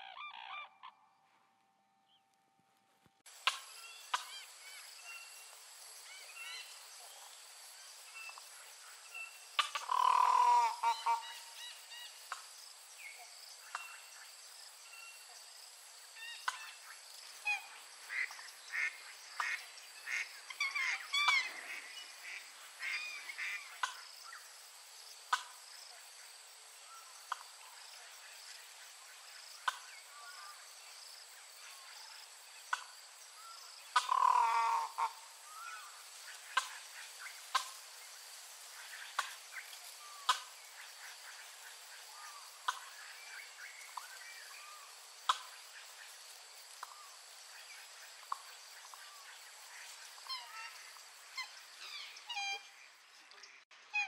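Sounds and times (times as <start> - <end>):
birds calling: 9.2 - 11.6, 33.9 - 37.8.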